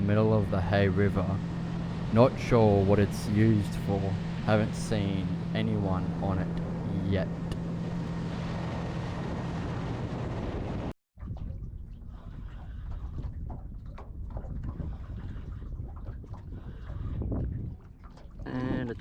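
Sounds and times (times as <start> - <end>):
water sounds: 0.0 - 9.4, 11.2 - 19.0
boat engine running: 0.0 - 10.9
wind buffeting microphone: 0.0 - 19.0.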